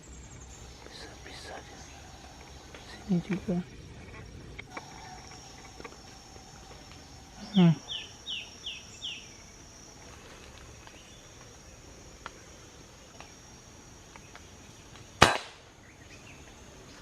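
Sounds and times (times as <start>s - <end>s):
air rifle shot: 15.2s - 15.6s.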